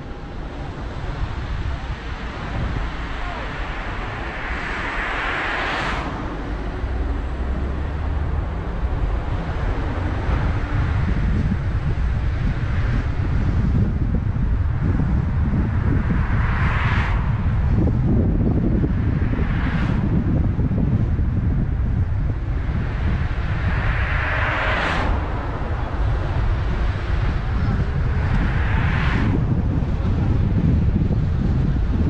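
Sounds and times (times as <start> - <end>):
short rushing swells: 0.0 - 13.8, 21.8 - 30.8
road and tyre noise: 0.0 - 32.0
wind noise on microphone: 0.0 - 32.0.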